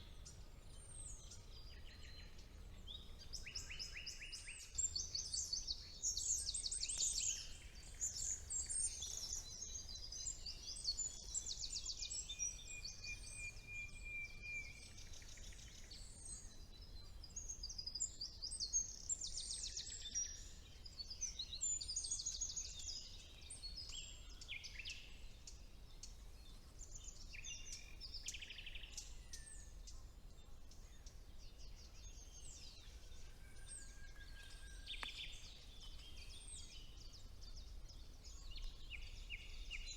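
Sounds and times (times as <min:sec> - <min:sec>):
nightingale singing: 0:00.0 - 0:16.5, 0:31.9 - 0:39.9
long level bird whistle: 0:00.0 - 0:30.0, 0:30.7 - 0:39.9
songbirds singing: 0:00.0 - 0:39.9.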